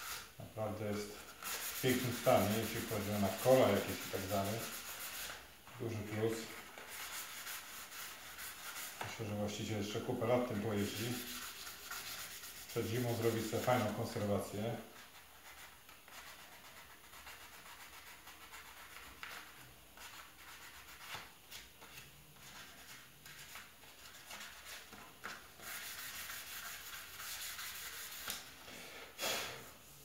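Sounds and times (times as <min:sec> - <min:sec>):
sandpaper rubbing on plastic: 0:01.0 - 0:14.2, 0:25.6 - 0:28.4.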